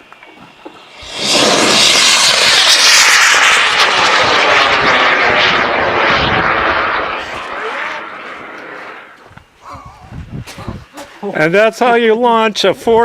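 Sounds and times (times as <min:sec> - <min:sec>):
rocket motor roar: 0:00.0 - 0:09.3.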